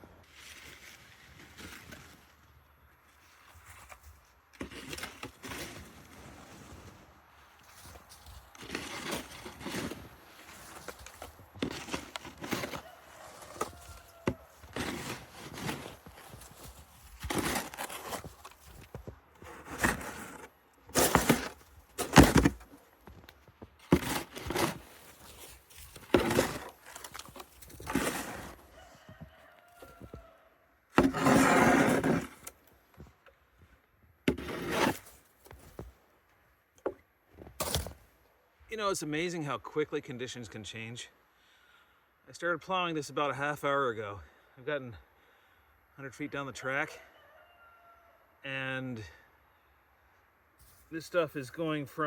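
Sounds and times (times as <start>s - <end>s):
snow shovel scooping wet snow: 0.3s - 2.4s, 4.6s - 22.8s, 23.8s - 28.7s, 31.0s - 32.6s, 34.3s - 35.6s.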